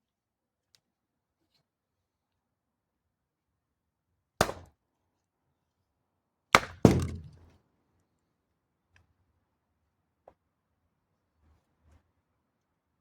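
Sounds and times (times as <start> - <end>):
axe chopping wood: 4.4 - 4.6, 6.6 - 7.4.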